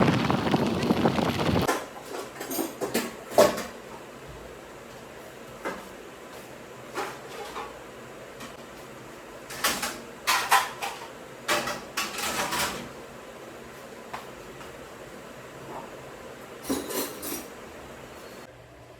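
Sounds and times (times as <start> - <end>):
dishes clattering: 16.6 - 17.5.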